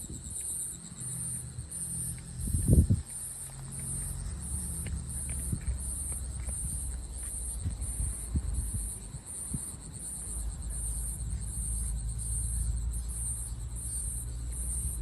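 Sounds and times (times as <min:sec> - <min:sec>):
insects calling in high pulses: 0:00.0 - 0:15.0
steady low rumble: 0:04.0 - 0:15.0.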